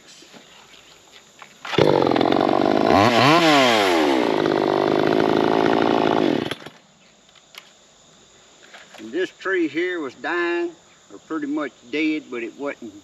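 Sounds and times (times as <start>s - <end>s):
chainsaw running: 1.7s - 6.7s.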